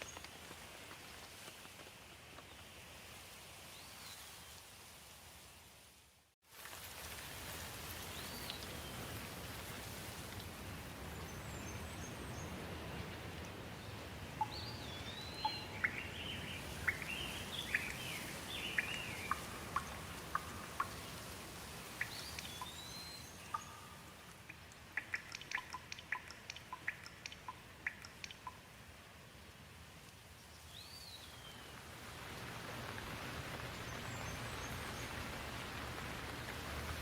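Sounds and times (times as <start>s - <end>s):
light rain: 0.0s - 37.0s
small bird chirping: 14.4s - 21.2s, 21.9s - 24.1s, 25.0s - 28.6s
single water drips: 18.7s - 21.1s, 23.4s - 28.7s.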